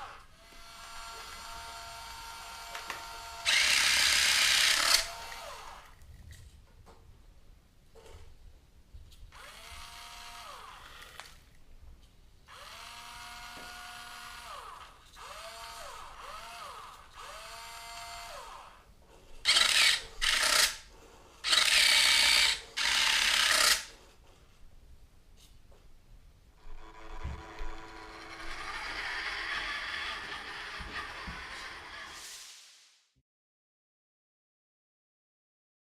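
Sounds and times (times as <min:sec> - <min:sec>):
electric motors whining: 0:00.0 - 0:05.9, 0:26.6 - 0:32.2
harsh gear grinding: 0:26.6 - 0:32.2.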